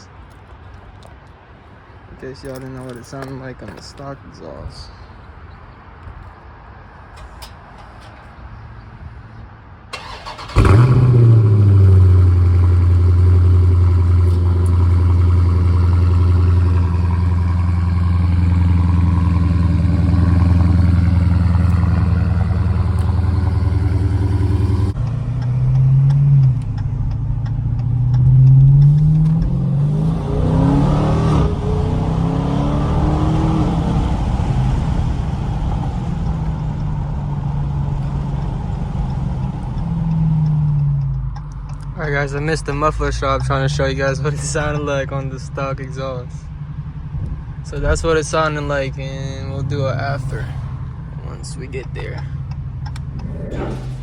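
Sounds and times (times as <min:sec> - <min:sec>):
car engine idling: 0:09.9 - 0:25.4, 0:34.1 - 0:54.0
car engine revving: 0:10.0 - 0:40.7, 0:42.4 - 0:54.0.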